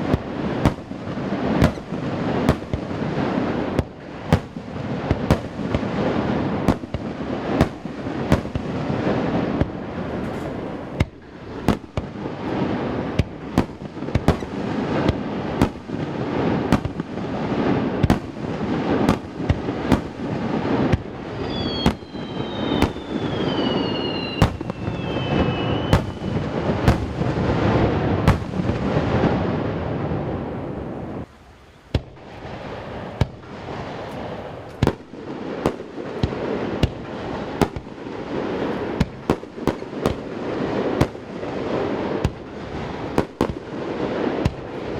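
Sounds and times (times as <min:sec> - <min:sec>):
fireworks crackling rumble: 0:00.0 - 0:44.9
firework whistles sliding down: 0:21.3 - 0:26.7.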